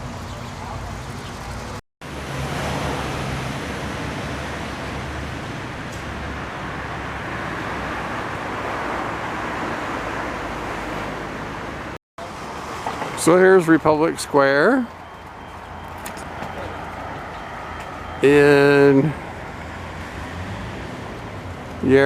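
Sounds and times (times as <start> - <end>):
cars driving past: 0.0 - 22.0.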